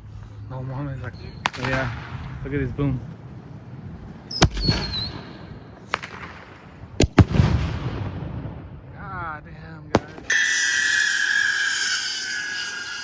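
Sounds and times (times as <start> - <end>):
fireworks bangs: 4.4 - 8.8, 9.9 - 11.1
firework whistle: 10.2 - 13.0.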